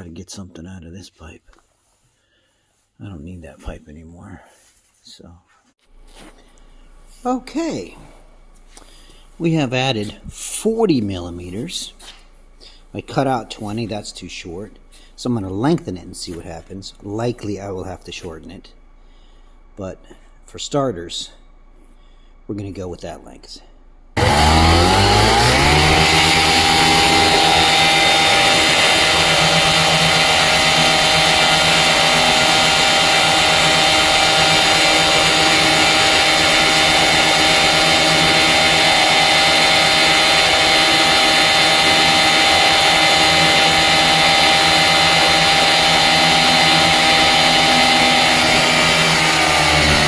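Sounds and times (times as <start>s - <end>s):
two-stroke engine at full throttle: 24.2s - 50.0s.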